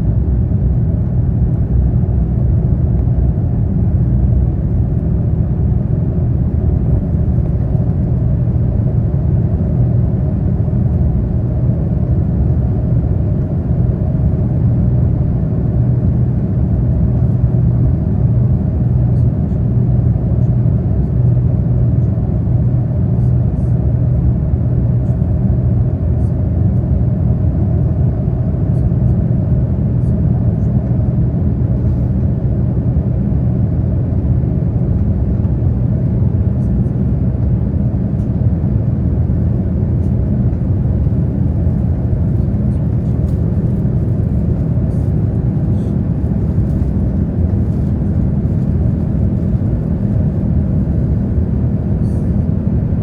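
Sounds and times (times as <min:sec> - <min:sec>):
jet engines running: 0:31.1 - 0:53.0.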